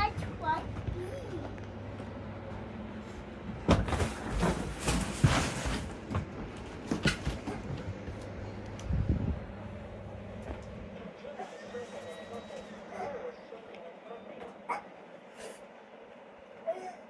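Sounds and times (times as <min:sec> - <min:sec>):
steady low hum: 0:00.0 - 0:17.0
objects knocking and rattling: 0:03.6 - 0:08.2.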